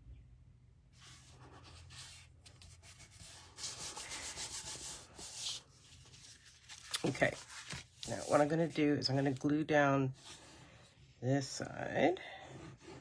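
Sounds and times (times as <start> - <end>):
paper rubbing on surface: 1.0 - 9.4.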